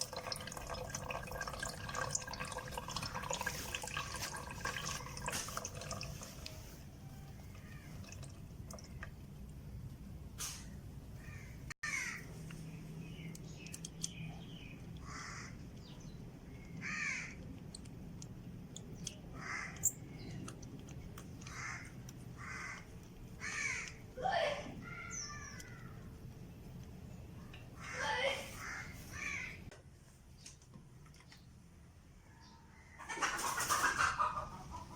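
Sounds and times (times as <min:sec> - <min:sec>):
harsh bird caws: 0:11.2 - 0:12.3, 0:15.0 - 0:15.6, 0:16.8 - 0:17.4, 0:19.3 - 0:20.0, 0:21.4 - 0:24.0, 0:27.8 - 0:29.7.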